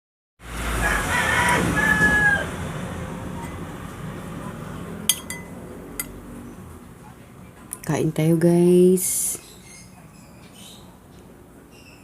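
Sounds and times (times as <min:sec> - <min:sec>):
rooster crowing: 0:00.7 - 0:02.8.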